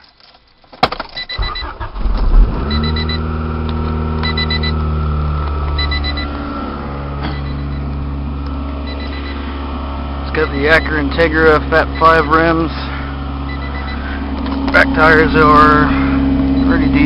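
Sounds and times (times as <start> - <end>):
engine starter cranking: 0.4 - 6.4
car engine idling: 1.4 - 17.0
electronic chime beeping: 2.6 - 3.2, 4.2 - 4.8, 5.7 - 8.0, 8.8 - 9.5, 13.5 - 14.1, 16.5 - 17.0.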